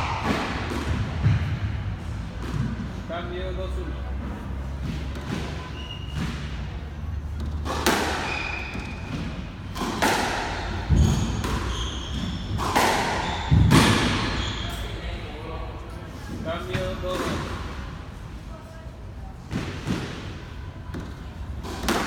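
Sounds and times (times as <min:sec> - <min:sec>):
shoes squeaking on court: 0:04.4 - 0:10.0, 0:10.6 - 0:15.0
squash ball cracking off racket: 0:07.3 - 0:11.7, 0:12.5 - 0:14.3, 0:20.9 - 0:22.0.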